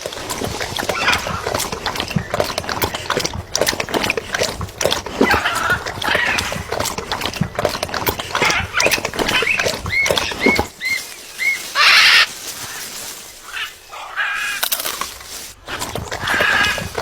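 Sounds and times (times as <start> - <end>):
bird chirps: 8.3 - 14.4.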